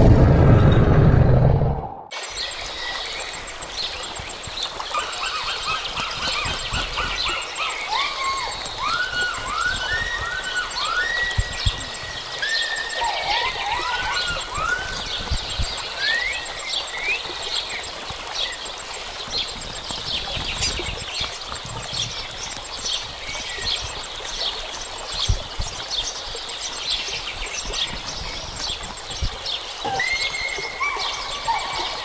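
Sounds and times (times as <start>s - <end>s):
low thumps: 0.0s - 2.1s
rising-and-falling bird calls: 4.9s - 18.6s, 29.8s - 32.0s.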